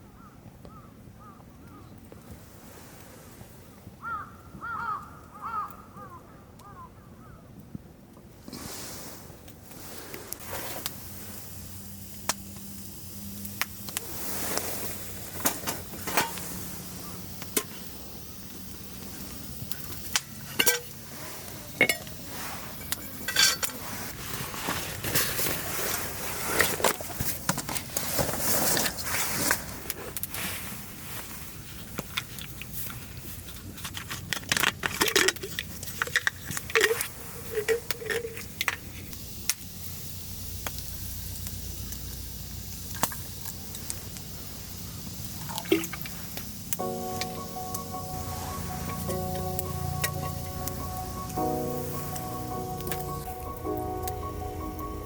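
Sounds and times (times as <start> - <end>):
metal cookware clinking: 15.4 - 16.6, 20.4 - 21.0, 21.7 - 24.1, 35.2 - 38.8.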